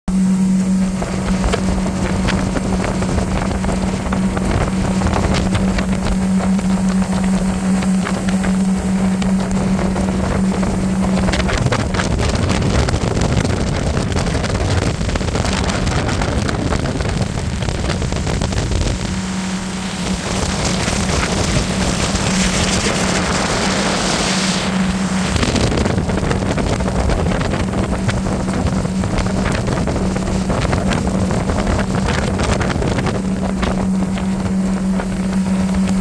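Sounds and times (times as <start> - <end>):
hull rushing through water: 0.0 - 36.0
motorboat engine hum: 0.0 - 36.0
wind buffeting microphone: 0.1 - 36.0.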